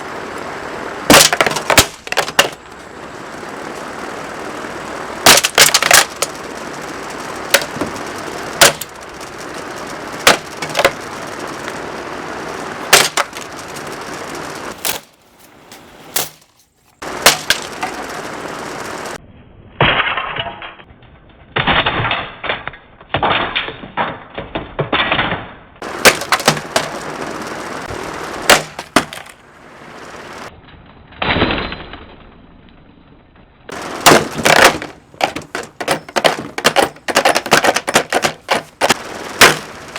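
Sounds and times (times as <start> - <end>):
steady rushing noise: 0.0 - 19.2, 25.8 - 30.5, 33.7 - 39.9
fan being smashed: 1.0 - 19.2, 21.5 - 30.5, 33.7 - 39.9.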